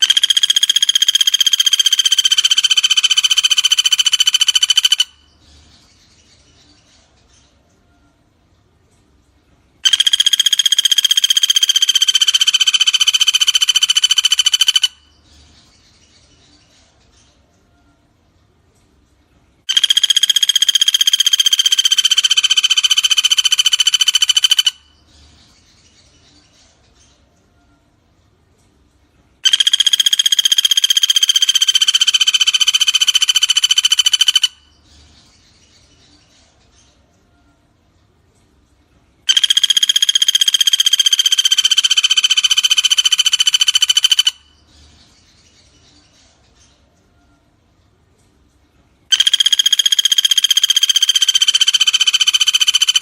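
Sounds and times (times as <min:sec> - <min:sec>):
woodpecker rattling trill: 0:00.0 - 0:05.4, 0:09.8 - 0:15.2, 0:19.7 - 0:25.0, 0:29.4 - 0:34.8, 0:39.3 - 0:44.7, 0:49.1 - 0:53.0.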